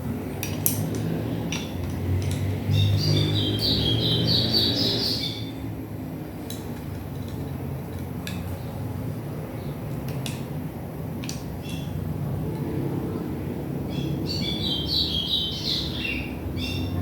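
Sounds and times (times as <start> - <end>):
clicks and clinks of small parts: 0.4 - 2.6, 6.4 - 8.6, 11.2 - 11.9
bird chirping: 2.7 - 5.6.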